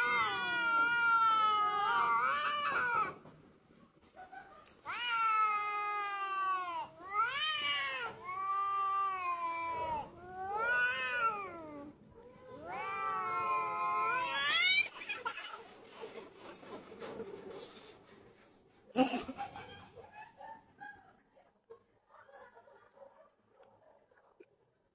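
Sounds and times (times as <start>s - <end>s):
cat yowling: 0.0s - 3.2s, 4.8s - 15.6s.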